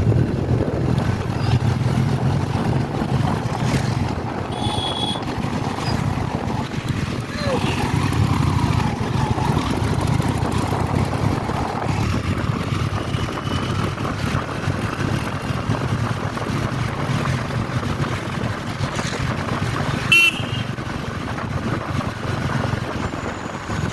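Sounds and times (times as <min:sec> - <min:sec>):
motorcycle engine running: 0:00.0 - 0:23.9
horn beep: 0:04.5 - 0:05.3, 0:20.1 - 0:20.6.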